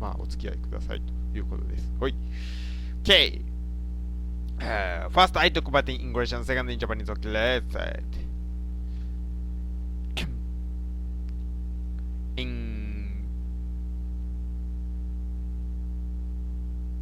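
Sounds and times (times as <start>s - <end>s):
electrical mains hum: 0.0s - 17.0s
short falling voice sound: 12.4s - 13.2s.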